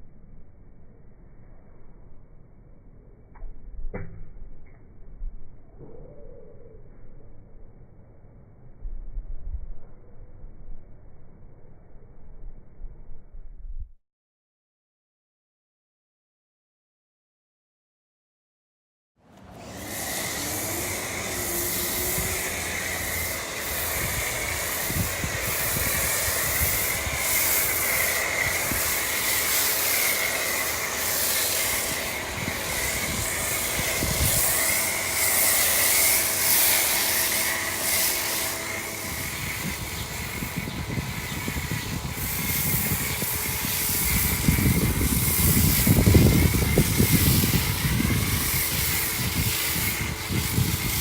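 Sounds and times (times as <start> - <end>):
pressure washer spraying foam: 19.3 - 51.0.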